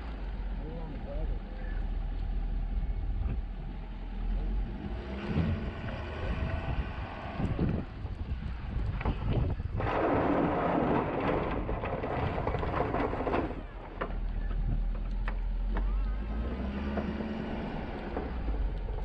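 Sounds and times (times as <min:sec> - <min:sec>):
diesel engine droning: 0:00.0 - 0:19.0
snow plow scraping: 0:04.2 - 0:19.0.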